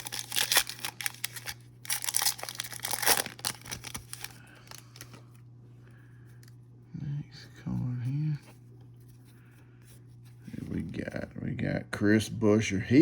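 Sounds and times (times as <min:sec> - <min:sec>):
plastic wrapper crinkling and tearing: 0:00.0 - 0:05.3
low electrical hum: 0:00.0 - 0:13.0.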